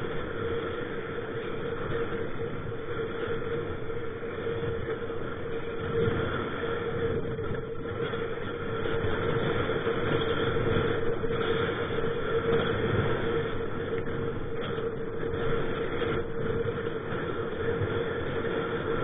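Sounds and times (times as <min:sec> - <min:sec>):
steady hum: 0:00.0 - 0:19.0
strong wind buffeting microphone: 0:00.0 - 0:19.0.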